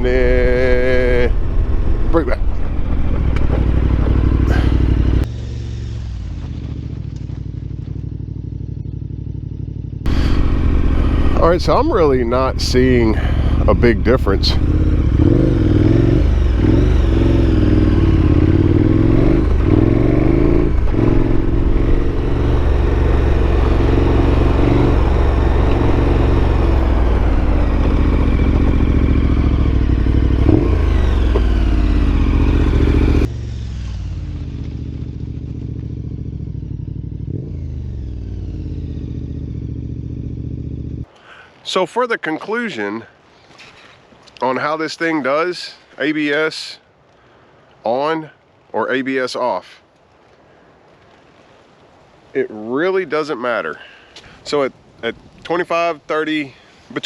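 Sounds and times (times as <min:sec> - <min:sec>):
motorcycle engine revving: 0:00.0 - 0:41.1.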